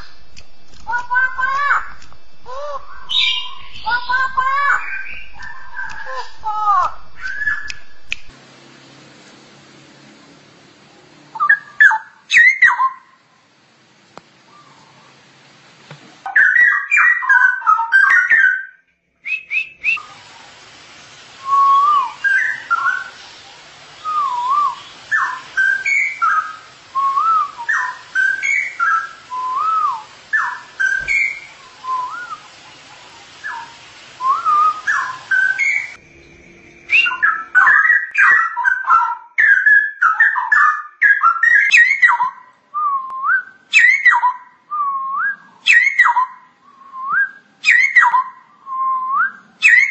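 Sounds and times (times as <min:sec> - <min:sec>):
bird singing whistled phrases: 0:00.0 - 0:08.3, 0:11.3 - 0:13.1, 0:16.3 - 0:20.1, 0:21.4 - 0:23.2, 0:24.0 - 0:32.5, 0:33.4 - 0:49.9.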